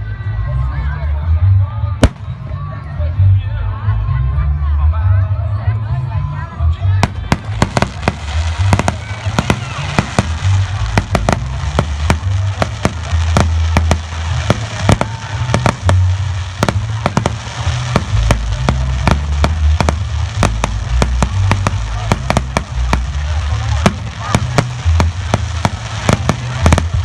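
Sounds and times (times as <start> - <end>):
fireworks bangs: 2.0 - 2.4, 7.0 - 27.0
heavy low rumble: 5.9 - 27.0.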